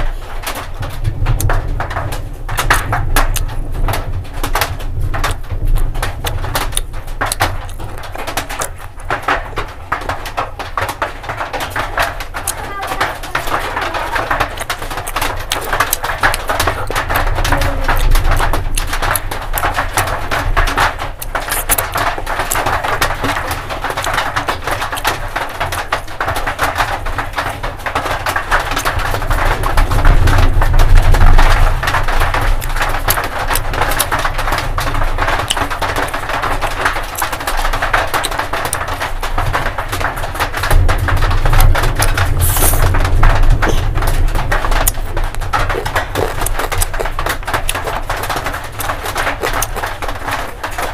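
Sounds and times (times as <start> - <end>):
chewing and mouth smacking: 6.8 - 9.0, 12.4 - 19.8, 21.2 - 24.2, 35.5 - 36.2, 41.6 - 42.9, 44.8 - 45.0, 45.6 - 50.6.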